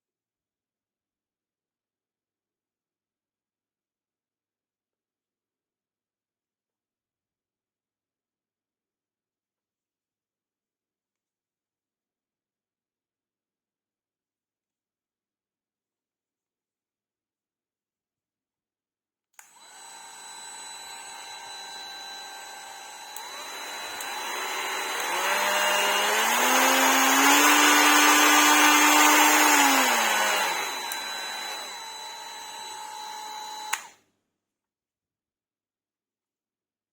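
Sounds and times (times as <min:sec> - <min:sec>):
die grinder whining: 0:19.5 - 0:33.9.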